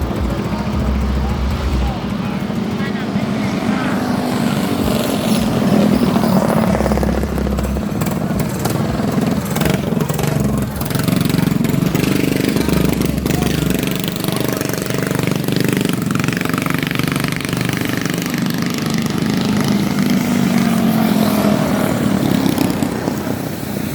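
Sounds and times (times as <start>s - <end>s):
mini bike engine running: 0.0s - 23.9s.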